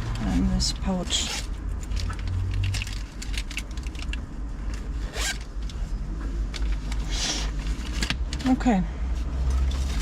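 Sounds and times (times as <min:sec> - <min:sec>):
zipper being pulled: 0:05.0 - 0:05.5.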